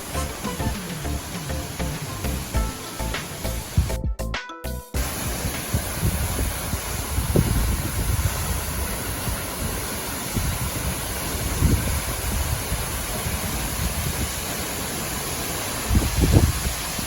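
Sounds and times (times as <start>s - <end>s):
waterfall rushing: 0.0s - 4.0s, 5.0s - 17.0s
wind buffeting microphone: 5.0s - 14.6s, 15.8s - 17.0s.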